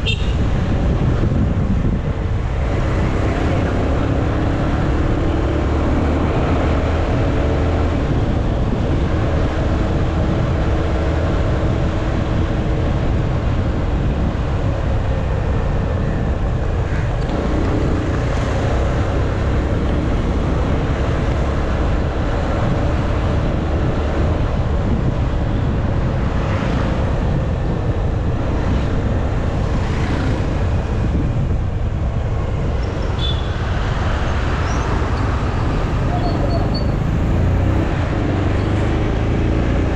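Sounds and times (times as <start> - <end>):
wind and road noise: 0.0 - 39.9
motorcycle engine running: 35.4 - 38.3.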